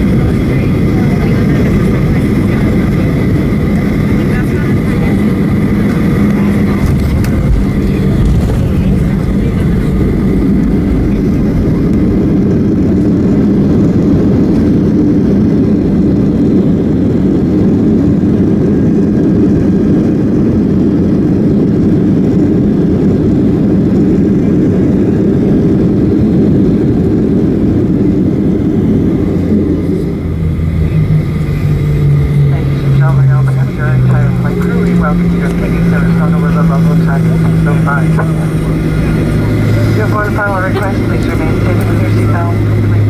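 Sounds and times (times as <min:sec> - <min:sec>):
jet engine roar in cabin: 0:00.0 - 0:43.0.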